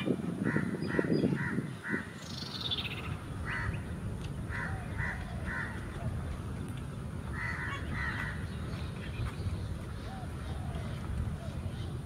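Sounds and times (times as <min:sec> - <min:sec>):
harsh crow-like bird calls: 0:00.4 - 0:03.9, 0:04.5 - 0:05.9, 0:07.3 - 0:08.6.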